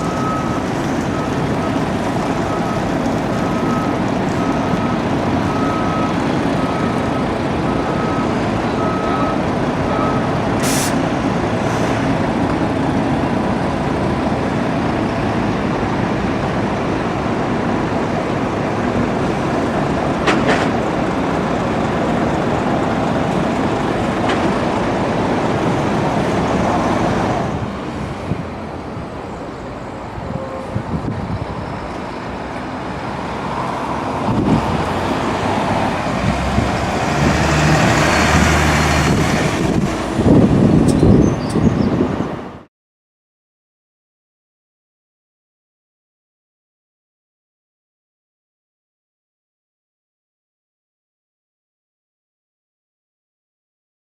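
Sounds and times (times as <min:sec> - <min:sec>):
bus diesel engine running: 0:00.0 - 0:42.6
air hiss: 0:10.6 - 0:11.0.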